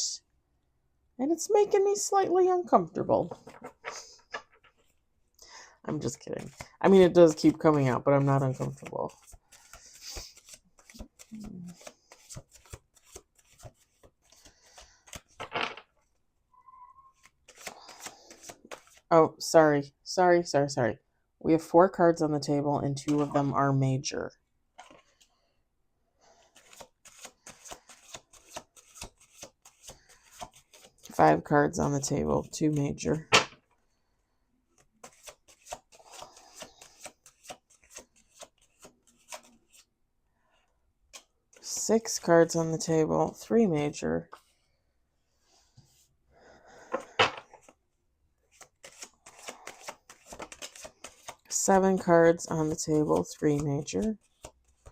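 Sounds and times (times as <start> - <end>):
cards being shuffled: 3.2 - 5.0, 6.2 - 15.8, 17.1 - 19.1, 24.8 - 25.3, 26.4 - 31.2, 34.7 - 39.9, 46.8 - 47.8, 48.4 - 54.9.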